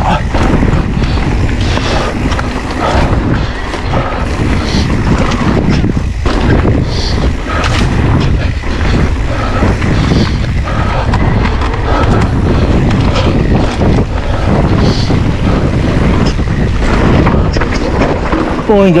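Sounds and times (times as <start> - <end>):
bike knocks and rattles: 0.0 - 19.0
wind buffeting microphone: 0.0 - 19.0.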